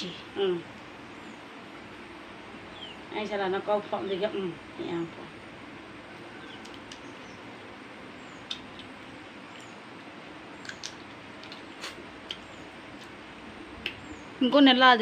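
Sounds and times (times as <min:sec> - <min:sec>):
steady low hiss: 0:00.0 - 0:15.0
mouth clicks and smacks chewing: 0:06.6 - 0:07.1, 0:08.4 - 0:09.0, 0:10.6 - 0:13.2.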